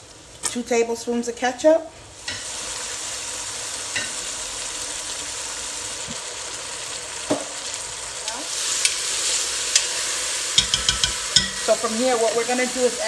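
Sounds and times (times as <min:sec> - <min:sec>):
fish sizzling in a pot: 0:02.0 - 0:13.0
light knocks of stirring pot: 0:10.6 - 0:11.6.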